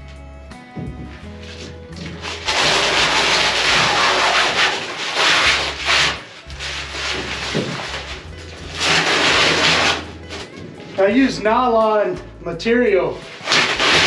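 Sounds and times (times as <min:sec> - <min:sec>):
fabric peeling with rasping tear: 0:01.4 - 0:11.1, 0:13.3 - 0:14.0.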